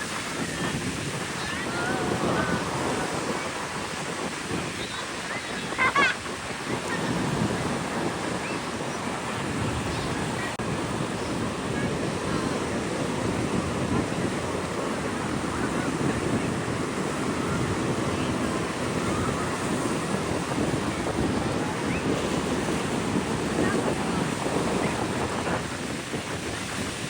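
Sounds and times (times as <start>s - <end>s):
ocean surf breaking: 0.0s - 27.0s
wind buffeting microphone: 0.0s - 27.0s.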